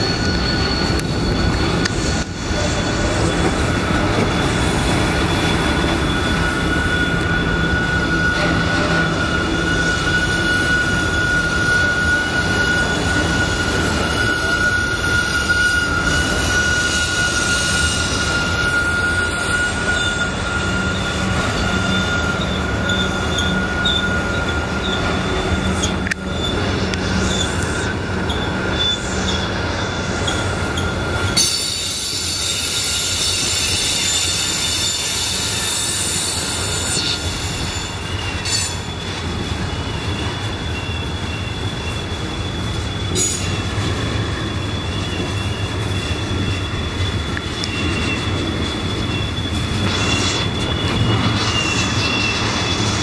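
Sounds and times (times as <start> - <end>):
wheel flanges squealing: 0.0 - 53.0
freight cars rumbling and rattling: 19.7 - 31.4, 36.4 - 53.0.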